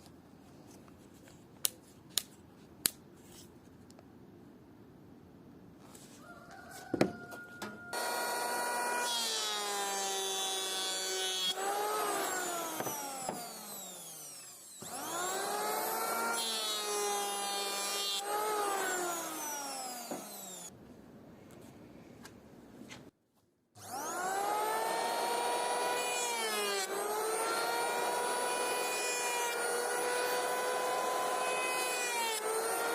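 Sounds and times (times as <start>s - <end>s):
power tool motor whine: 8.0s - 20.7s, 23.8s - 32.9s.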